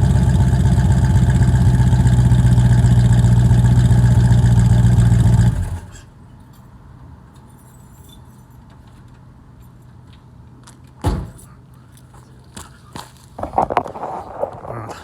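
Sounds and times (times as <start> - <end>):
car engine idling: 0.0 - 6.0.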